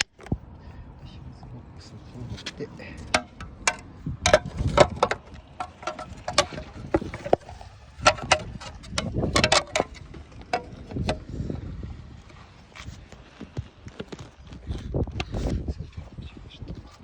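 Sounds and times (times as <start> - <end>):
plastic clicks and knocks: 3.0 - 11.3.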